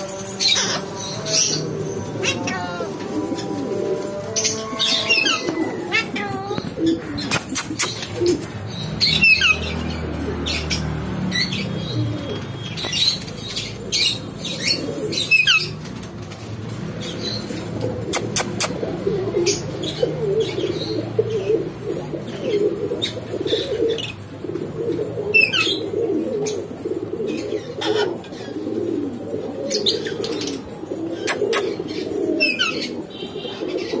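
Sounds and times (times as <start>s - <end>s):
low cooing warble: 0.0s - 10.7s, 17.6s - 34.0s.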